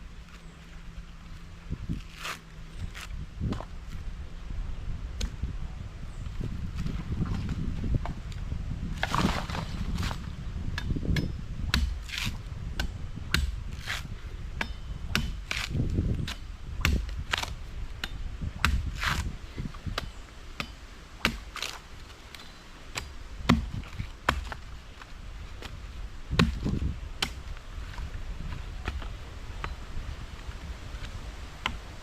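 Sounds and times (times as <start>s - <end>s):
machete chopping knocks: 10.8s - 14.0s, 14.6s - 19.3s, 19.9s - 21.8s, 23.0s - 24.6s, 25.6s - 27.4s.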